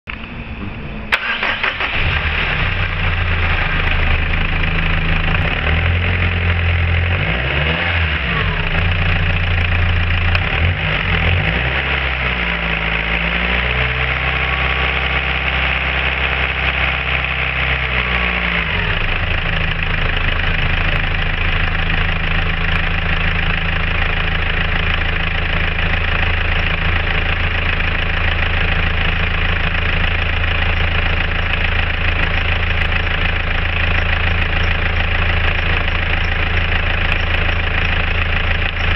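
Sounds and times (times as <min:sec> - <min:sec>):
diesel engine starting and idling: 0:00.1 - 0:38.9
engine revving: 0:00.2 - 0:19.8.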